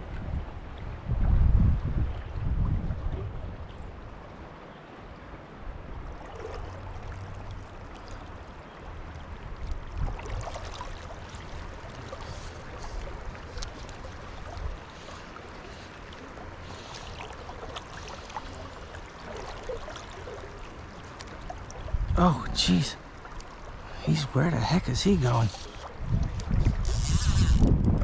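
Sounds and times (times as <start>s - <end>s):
river water rushing: 4.0s - 26.2s.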